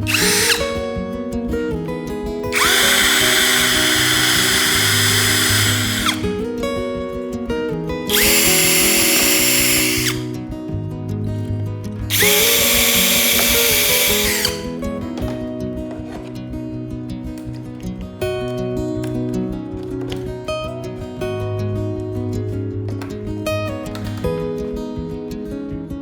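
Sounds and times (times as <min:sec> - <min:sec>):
electric drill whining: 0:00.0 - 0:00.8, 0:02.5 - 0:06.4, 0:08.1 - 0:10.3, 0:12.1 - 0:14.8.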